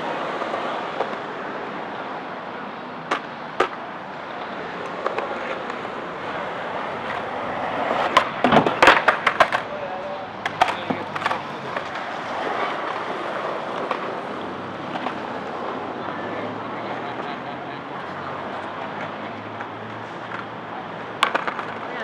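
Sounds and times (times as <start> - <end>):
skateboard wheels rolling: 0.0 - 22.0
skateboard hitting and grinding: 3.0 - 3.8, 4.4 - 9.8, 10.4 - 15.8, 18.9 - 22.0.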